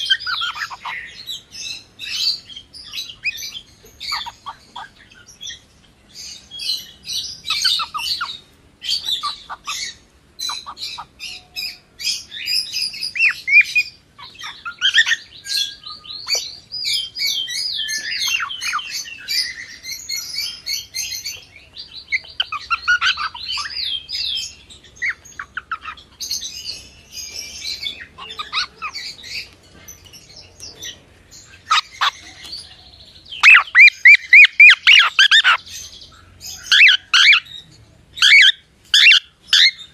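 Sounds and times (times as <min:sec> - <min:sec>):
cockatiel chirping and whistling: 0:33.4 - 0:35.6, 0:36.7 - 0:37.4, 0:38.2 - 0:39.9.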